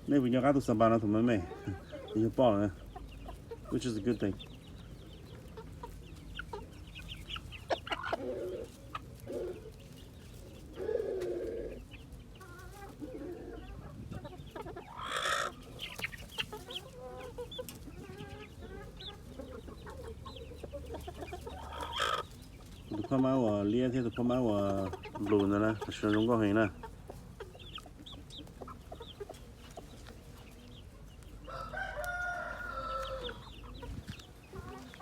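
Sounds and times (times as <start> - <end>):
chickens clucking: 0.0 - 35.0
harsh chicken call: 12.4 - 17.5, 21.2 - 22.4.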